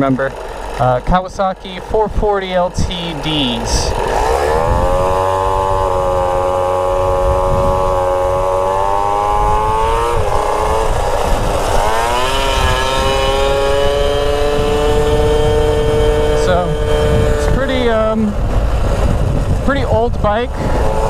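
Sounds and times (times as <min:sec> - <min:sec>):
small motorbike engine running: 0:00.0 - 0:21.0.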